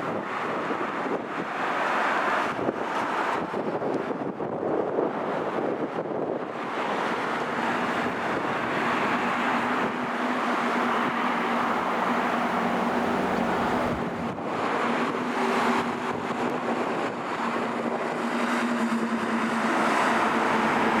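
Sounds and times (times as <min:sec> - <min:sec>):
broad rushing noise: 0:00.0 - 0:21.0
garbage truck engine hum: 0:06.7 - 0:21.0.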